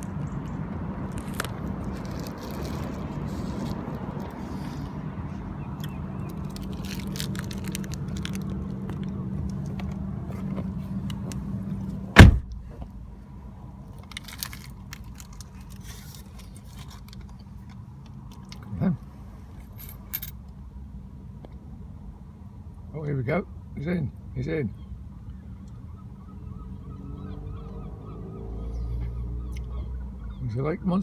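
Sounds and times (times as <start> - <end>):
vehicle engine hum: 0.0 - 31.0
loud thump: 12.2 - 12.8.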